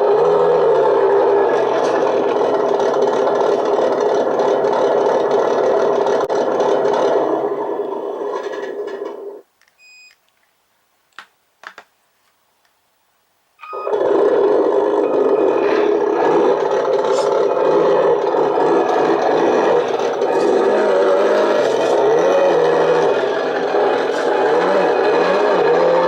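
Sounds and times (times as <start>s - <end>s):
simulated diesel engine sound: 0.0s - 9.4s, 13.6s - 26.0s
short beep: 9.8s - 10.2s, 13.6s - 13.9s.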